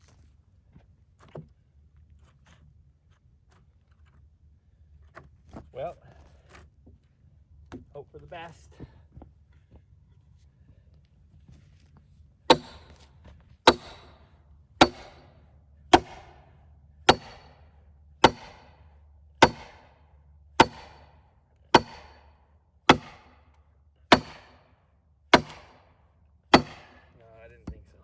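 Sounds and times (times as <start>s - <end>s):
hammer striking metal wedge: 12.5s - 13.0s, 13.7s - 14.2s, 14.8s - 15.3s, 15.9s - 16.4s, 17.1s - 17.6s, 18.2s - 18.8s, 19.4s - 19.9s, 20.6s - 22.3s, 22.9s - 23.4s, 24.1s - 24.6s, 25.3s - 25.9s, 26.5s - 27.0s.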